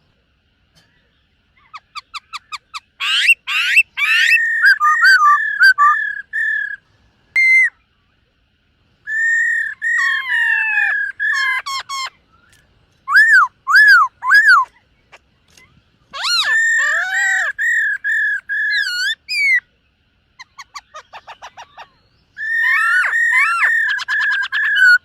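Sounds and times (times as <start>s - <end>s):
bird singing whistled phrases: 2.0s - 6.8s, 7.4s - 7.8s, 9.1s - 14.7s, 16.2s - 19.6s, 20.4s - 25.0s.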